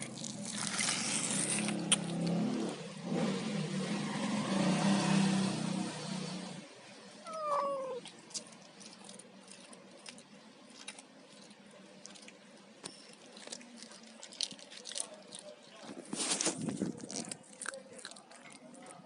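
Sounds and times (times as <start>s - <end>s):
cat meowing: 7.2s - 8.1s.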